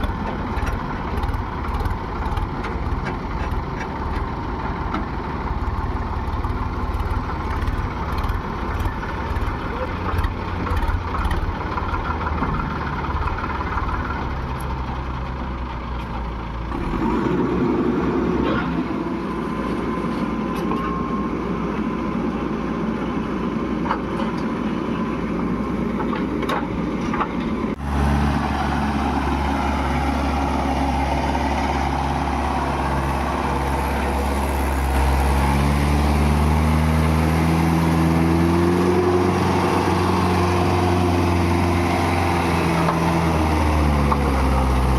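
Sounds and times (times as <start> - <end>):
heavy diesel engines running: 0.0 - 44.9
engine speeding up: 16.7 - 19.5, 27.7 - 44.9.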